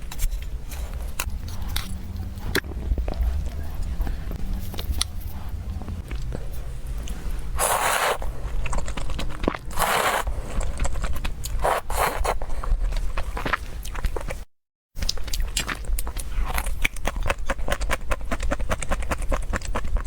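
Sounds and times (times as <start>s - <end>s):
person chewing and biting: 4.6s - 14.4s.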